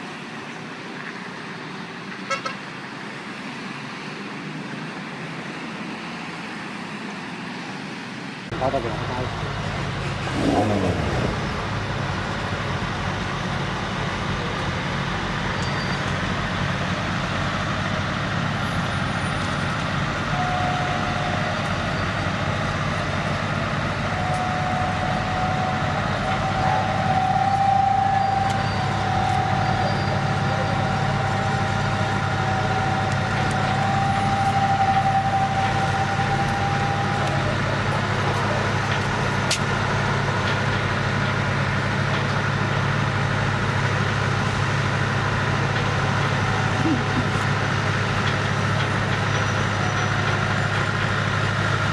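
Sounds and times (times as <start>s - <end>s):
road noise: 0.0s - 51.9s
truck engine running: 8.5s - 51.9s
high whine: 19.4s - 39.8s.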